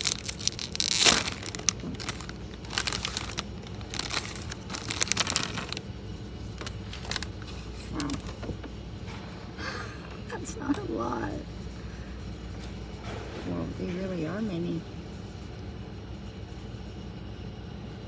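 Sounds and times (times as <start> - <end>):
plastic snack pouch crinkling: 0.0 - 5.8, 6.4 - 8.4.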